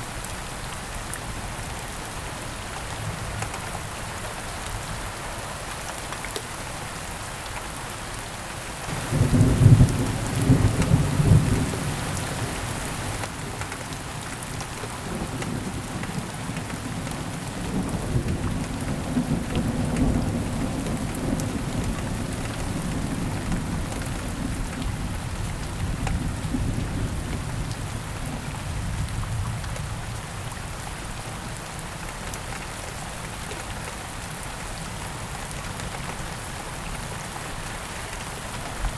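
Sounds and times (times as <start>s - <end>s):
steady rain falling: 0.0s - 38.9s
low rumble of thunder: 8.9s - 13.1s, 15.0s - 30.6s.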